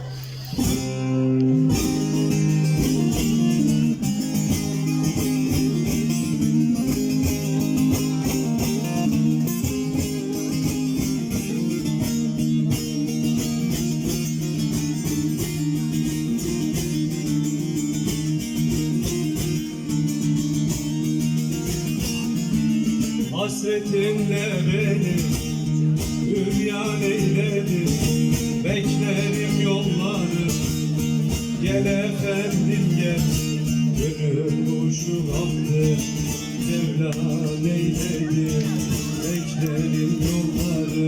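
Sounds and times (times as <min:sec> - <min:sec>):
amplified long-necked lute playing: 0:00.5 - 0:41.0.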